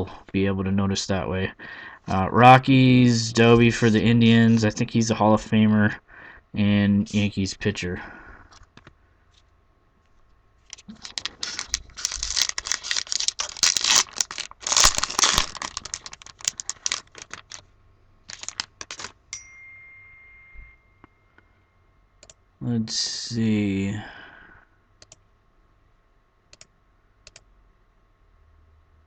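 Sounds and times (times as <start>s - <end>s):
card pack wrapper tearing and crinkling: 10.7s - 17.7s, 18.3s - 19.2s.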